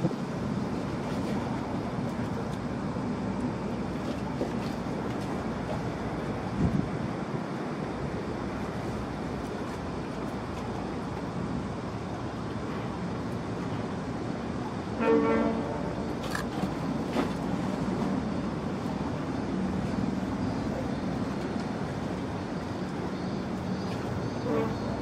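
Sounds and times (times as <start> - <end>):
water noise: 0.0 - 25.0
wind: 0.0 - 25.0
short horn toot: 24.4 - 25.0.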